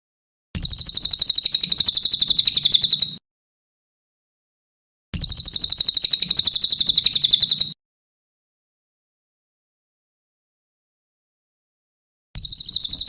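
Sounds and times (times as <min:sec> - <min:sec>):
songbird chirping: 0:00.6 - 0:03.2, 0:05.2 - 0:07.8, 0:12.4 - 0:13.0.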